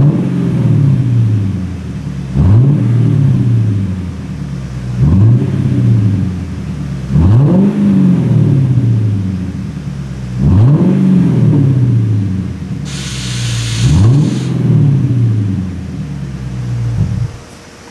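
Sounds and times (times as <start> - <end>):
car engine revving: 0.0 - 1.6, 2.2 - 9.6, 10.3 - 17.4
brief hiss: 12.9 - 14.6.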